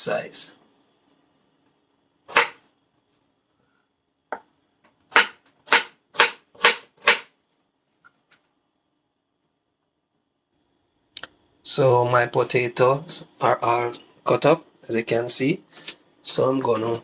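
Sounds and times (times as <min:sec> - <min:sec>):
knife chopping on cutting board: 0:02.3 - 0:02.6, 0:05.1 - 0:07.3.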